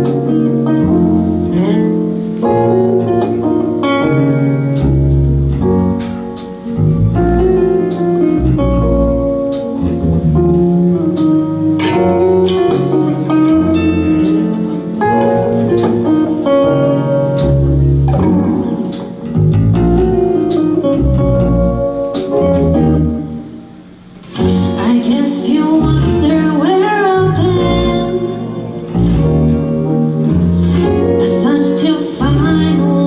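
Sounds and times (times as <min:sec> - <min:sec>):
bass: 0:00.0 - 0:33.0
guitar: 0:00.0 - 0:33.0
keyboard chords: 0:00.0 - 0:33.0
drums with cymbal hits: 0:22.1 - 0:22.6.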